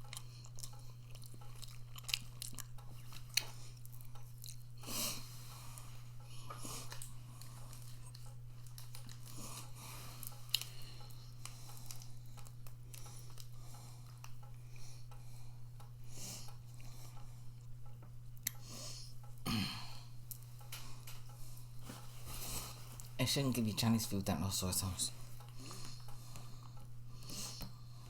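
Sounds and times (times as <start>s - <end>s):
person chewing: 0.0s - 15.3s, 18.4s - 23.2s, 25.3s - 28.0s
steady low hum: 0.0s - 28.0s.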